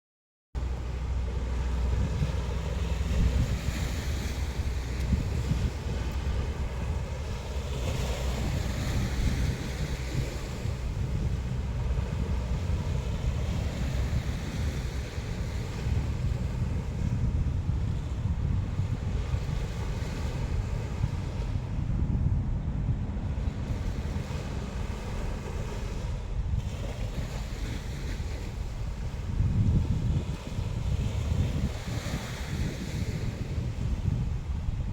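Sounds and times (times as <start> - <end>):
sea waves breaking: 0.6 - 34.9
wind rumbling on microphone: 0.6 - 34.9.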